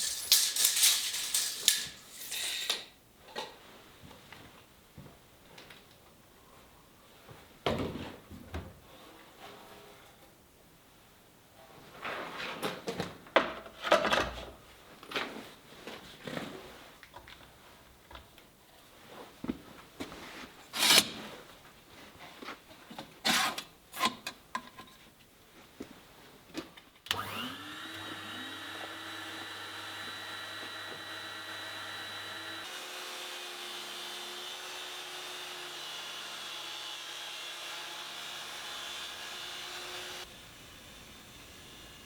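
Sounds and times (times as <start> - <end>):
things being handled clattering: 0.0 - 2.5
electric machine humming: 27.1 - 42.0.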